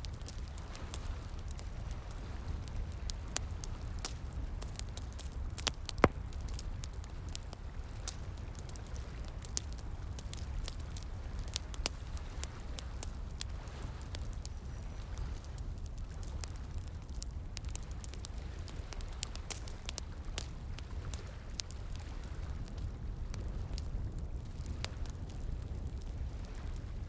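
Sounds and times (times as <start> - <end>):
wood fire crackling: 0.0 - 27.0
loud snap of fire: 3.3 - 12.0.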